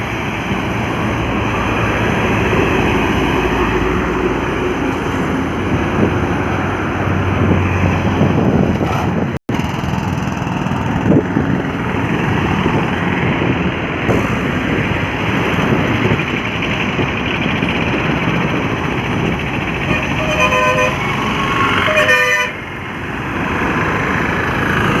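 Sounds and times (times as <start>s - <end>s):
heavy trucks passing: 0.0s - 25.0s
truck horn honking: 19.8s - 22.6s.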